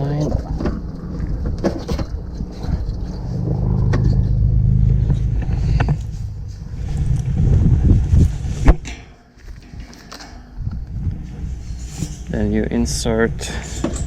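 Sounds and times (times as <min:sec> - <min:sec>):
low rumble: 0:00.4 - 0:08.8.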